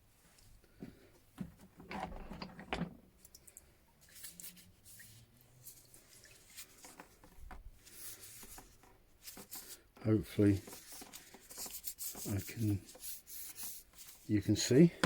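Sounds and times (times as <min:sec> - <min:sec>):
rustling scrape: 0:04.0 - 0:14.9.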